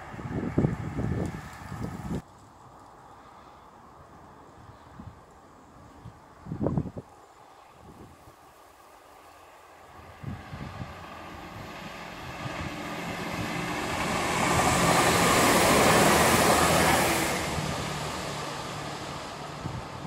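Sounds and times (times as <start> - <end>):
wind buffeting microphone: 0.0 - 2.3, 4.6 - 7.1, 7.8 - 8.4, 9.9 - 20.0
diesel train engines: 0.0 - 20.0
train wheels rushing on rails: 10.0 - 20.0.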